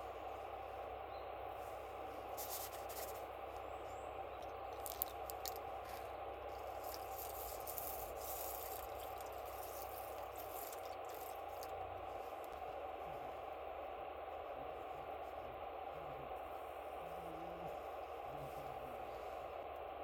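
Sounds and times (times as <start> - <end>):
campfire burning rush: 0.0 - 20.0
fire crackles and pops: 4.4 - 12.9.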